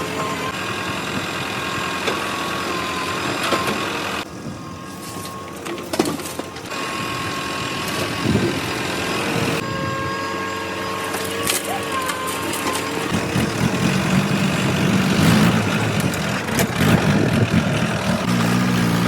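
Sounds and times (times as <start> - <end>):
diesel engines running: 0.0 - 19.0
steady high tone: 9.6 - 13.6.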